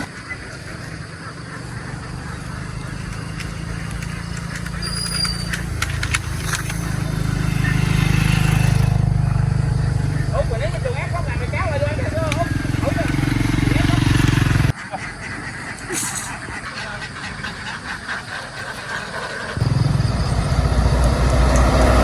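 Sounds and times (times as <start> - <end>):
vehicle engine rumbling: 0.0 - 14.8, 16.0 - 22.0
sharp clicks: 2.4 - 9.1.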